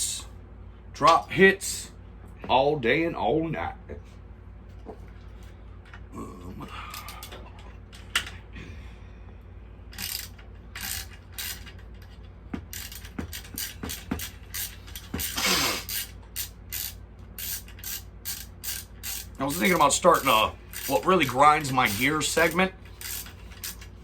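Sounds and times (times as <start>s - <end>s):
ratchet wrench clicking: 9.9s - 24.0s.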